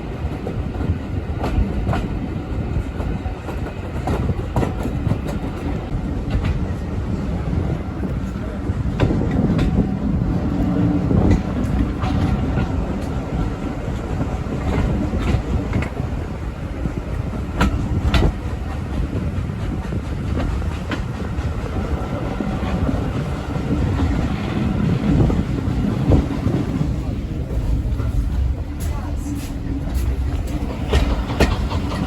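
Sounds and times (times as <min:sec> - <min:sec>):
railway carriage rumble: 0:00.0 - 0:32.0
wheels clicking over rail joints: 0:08.9 - 0:16.3, 0:17.0 - 0:32.0.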